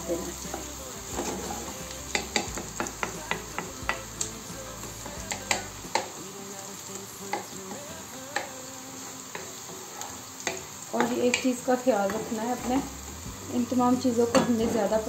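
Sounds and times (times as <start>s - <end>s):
wooden spoon knocking a pan: 0.0s - 4.1s, 14.3s - 15.0s
onion sizzling in oil: 0.0s - 15.0s.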